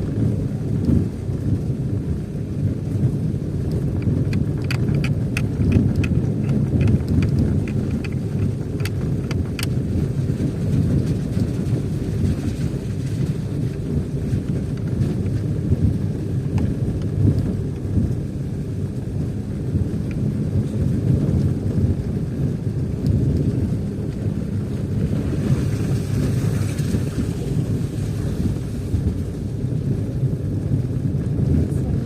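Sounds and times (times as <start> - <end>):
car driving rumble: 0.0 - 32.0
road and wind noise: 0.0 - 32.0
light clicks and ticks: 3.6 - 9.8.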